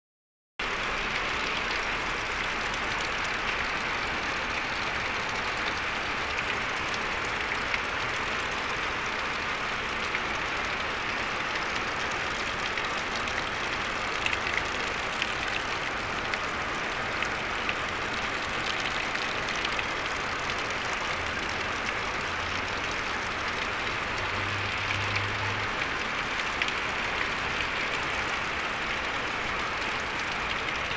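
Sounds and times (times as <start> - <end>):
heavy rain on water: 0.6 - 30.9.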